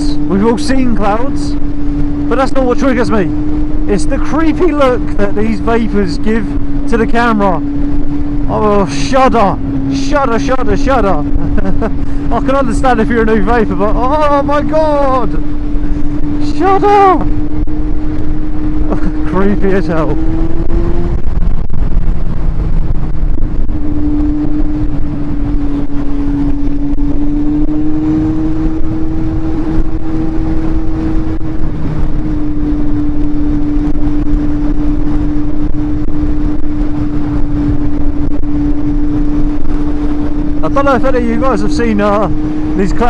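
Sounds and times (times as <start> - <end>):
motorcycle engine cruising: 0.0 - 43.0
wind rushing over microphone: 0.0 - 43.0.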